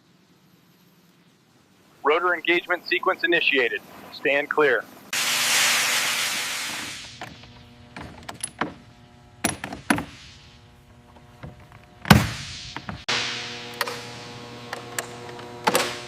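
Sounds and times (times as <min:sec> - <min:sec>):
faint steady hum: 0:00.0 - 0:05.2, 0:06.5 - 0:16.0
loud burst of hiss: 0:05.1 - 0:07.4, 0:09.8 - 0:10.9.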